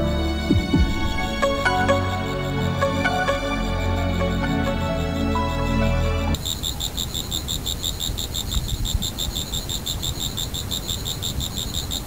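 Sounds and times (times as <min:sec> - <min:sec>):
low rumble: 0:00.0 - 0:06.3
background music: 0:00.0 - 0:06.4
crickets chirping: 0:01.2 - 0:12.0.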